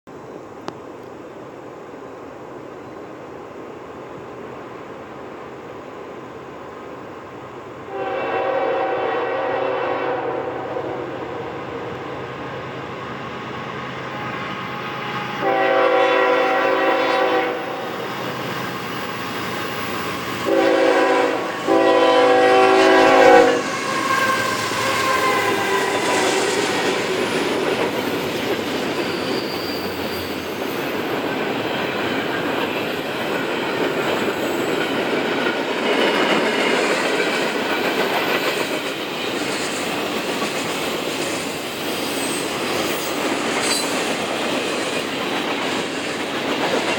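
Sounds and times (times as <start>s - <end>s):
locomotive air horn blasts: 7.9s - 11.6s, 14.1s - 17.9s, 20.4s - 26.5s
train wheels clacking on rails: 13.0s - 46.9s.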